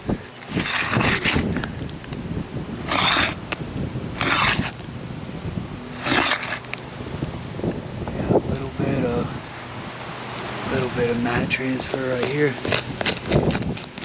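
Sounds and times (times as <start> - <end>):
shingles ripping loose: 0.4 - 1.6, 2.8 - 3.4, 4.2 - 4.8, 6.0 - 6.7.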